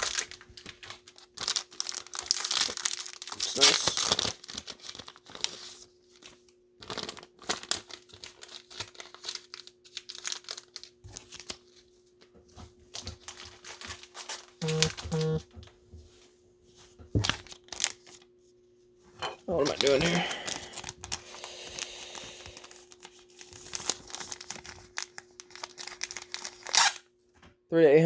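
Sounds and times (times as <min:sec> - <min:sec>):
plastic packaging crinkling: 0:00.0 - 0:11.9, 0:12.9 - 0:15.4, 0:17.2 - 0:18.3, 0:19.5 - 0:27.0
short low tones: 0:14.6 - 0:15.4.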